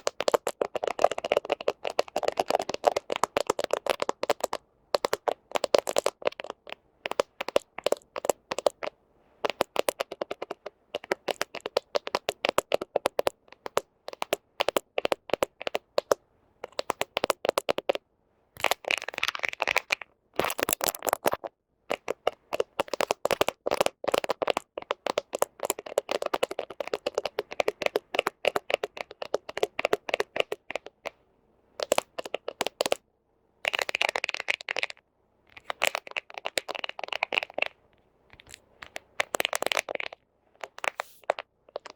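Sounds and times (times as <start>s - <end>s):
fingernails tapping and scratching: 0.0s - 18.0s, 20.6s - 31.2s, 31.8s - 33.0s, 38.3s - 41.9s.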